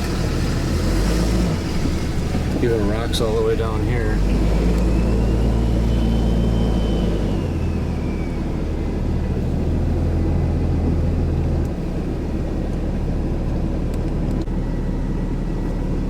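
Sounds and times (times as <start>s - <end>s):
car engine from inside cabin: 0.0s - 16.0s.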